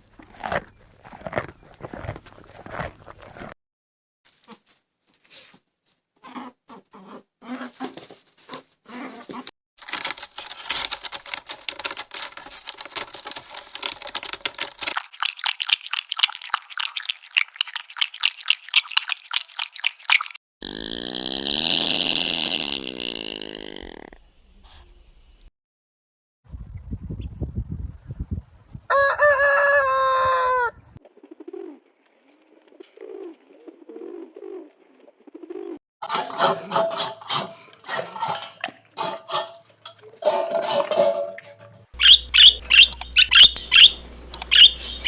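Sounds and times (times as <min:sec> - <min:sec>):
rapid crunching or pattering: 0:00.0 - 0:03.6, 0:09.8 - 0:20.4
animal grunts: 0:20.6 - 0:24.2.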